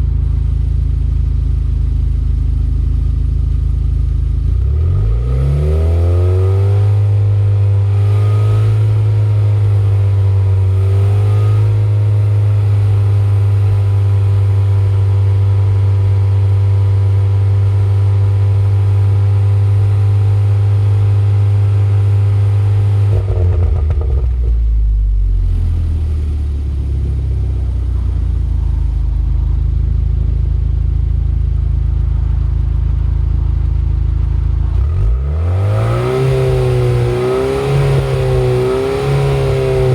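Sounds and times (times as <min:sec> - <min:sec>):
car engine revving: 0:04.6 - 0:16.4, 0:18.0 - 0:39.9
exhaust crackle: 0:20.4 - 0:39.9.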